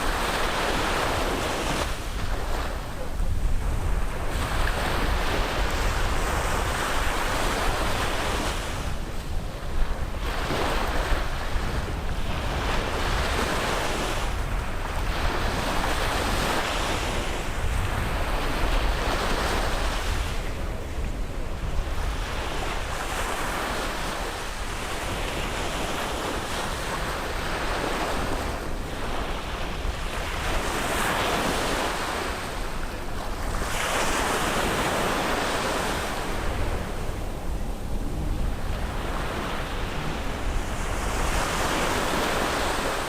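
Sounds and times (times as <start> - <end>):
sea waves breaking on a beach: 0.0 - 43.0
steady low rumble: 36.2 - 41.6.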